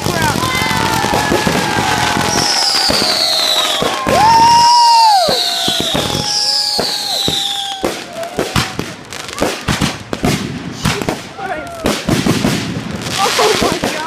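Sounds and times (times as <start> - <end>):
fireworks cracking and banging: 0.0 - 14.0
firework whistles: 0.7 - 9.8.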